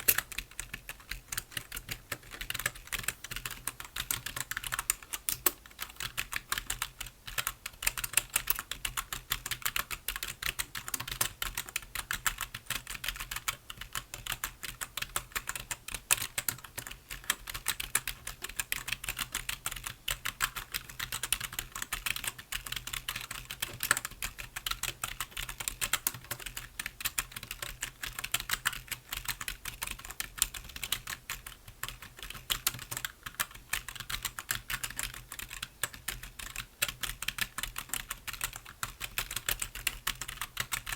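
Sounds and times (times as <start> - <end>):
fast typing on keyboard: 0.0 - 40.9.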